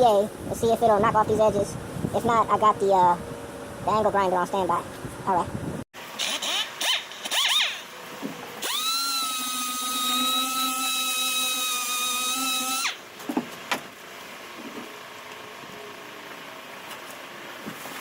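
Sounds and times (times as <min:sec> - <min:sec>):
sander whining: 0:08.6 - 0:13.0.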